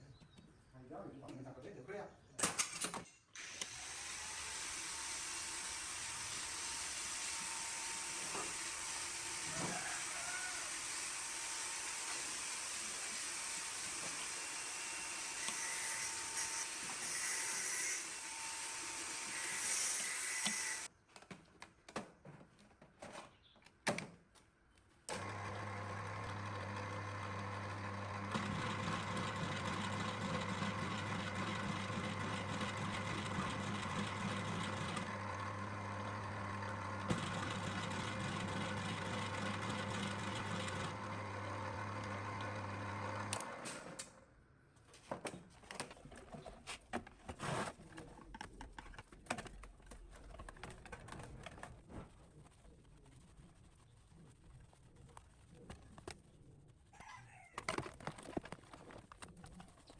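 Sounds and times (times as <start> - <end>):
electric motor humming: 3.4 - 20.9.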